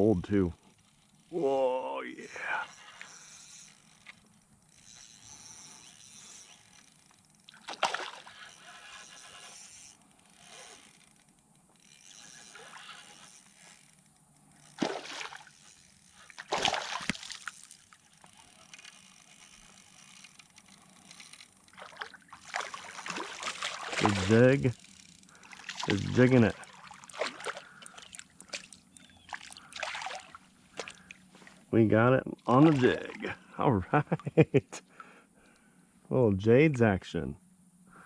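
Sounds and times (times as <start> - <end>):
fish splashing in water: 7.4 - 8.6, 14.7 - 19.0, 21.1 - 31.6, 32.5 - 33.4.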